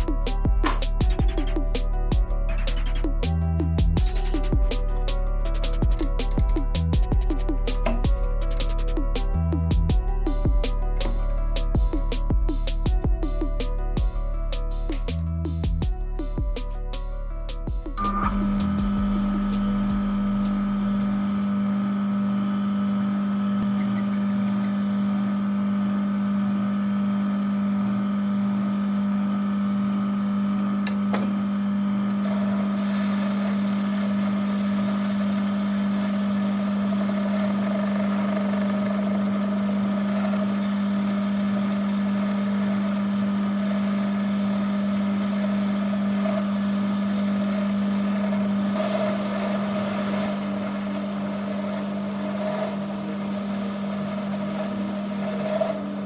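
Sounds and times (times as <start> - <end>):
higher steady note: 0.0 - 22.4
lathe motor humming: 16.7 - 56.0.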